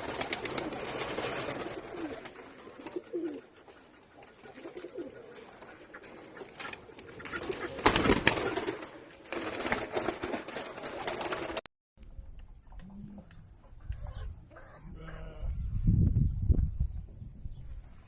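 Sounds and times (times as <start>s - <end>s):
pigeons cooing: 0.0s - 9.0s.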